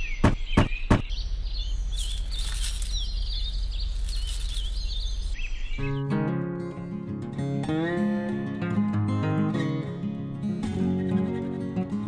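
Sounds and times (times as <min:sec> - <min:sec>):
birds chirping: 0:00.0 - 0:06.3
sharp knocks: 0:00.2 - 0:01.1.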